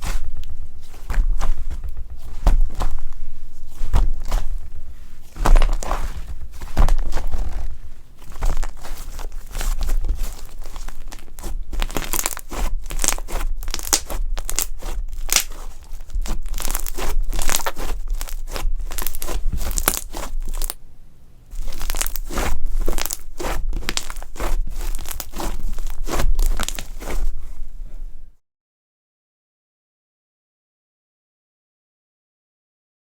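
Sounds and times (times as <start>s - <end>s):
slime crackling and popping: 5.4s - 7.5s, 8.2s - 20.8s, 21.6s - 27.3s.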